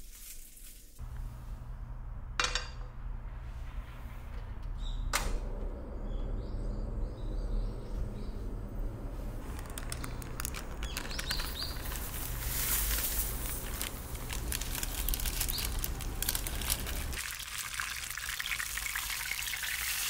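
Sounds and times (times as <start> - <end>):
steady low hum: 1.0 - 10.8
small clicks and rustling: 9.4 - 17.2
high bird chirps: 10.8 - 12.1.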